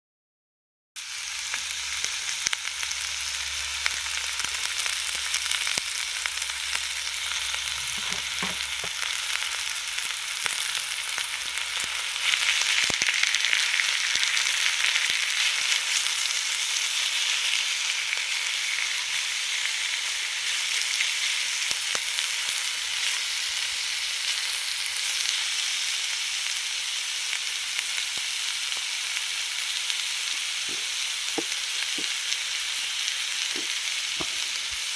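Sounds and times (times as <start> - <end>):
food sizzling on a grill: 1.0 - 34.9
small pops: 30.7 - 32.1.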